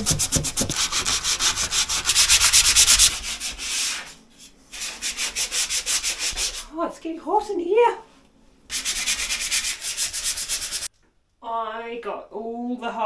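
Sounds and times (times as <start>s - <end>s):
sandpaper rubbing wood: 0.0s - 6.7s, 8.7s - 10.9s.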